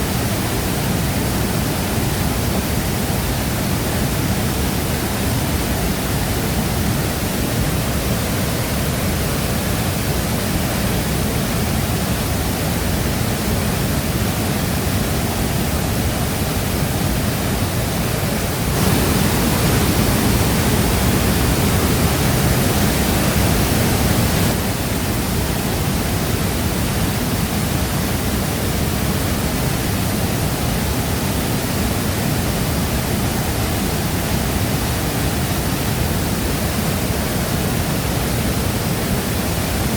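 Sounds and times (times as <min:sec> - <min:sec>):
waterfall pouring: 0:18.6 - 0:24.6.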